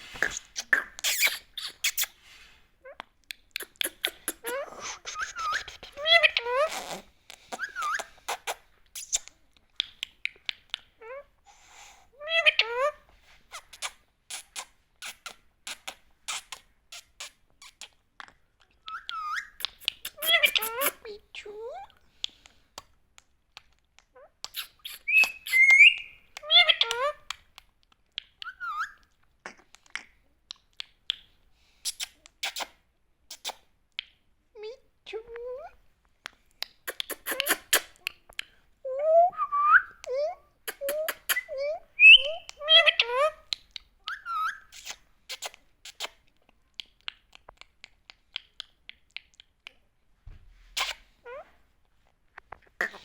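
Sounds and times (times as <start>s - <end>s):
parrot chirps and clicks: 0.2s - 2.2s, 2.9s - 11.0s, 13.7s - 21.1s, 22.2s - 34.2s, 36.2s - 38.6s, 39.8s - 49.8s
parrot squawks: 40.7s - 43.4s.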